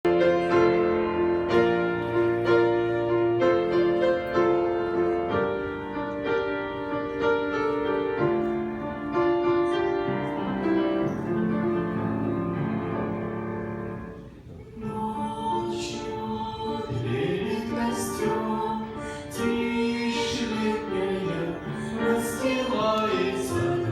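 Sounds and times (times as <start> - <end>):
piano chords: 0.0 - 23.9.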